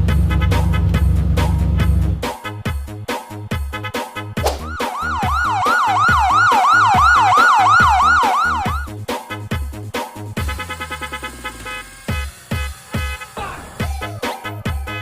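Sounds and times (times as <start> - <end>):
electronic dance beat: 4.4 - 15.0
police siren yelping: 4.5 - 8.9.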